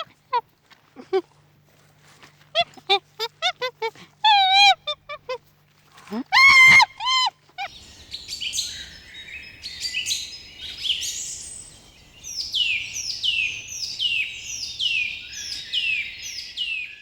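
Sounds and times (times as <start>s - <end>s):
bird chirping: 7.6s - 17.0s.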